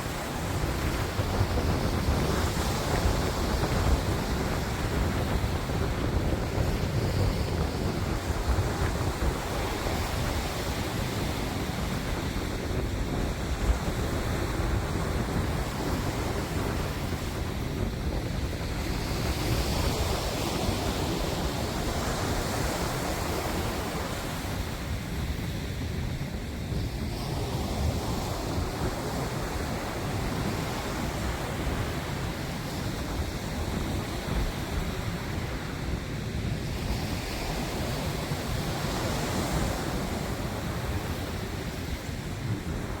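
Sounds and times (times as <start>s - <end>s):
waves washing: 0.0s - 43.0s
wind rumbling on microphone: 0.0s - 43.0s.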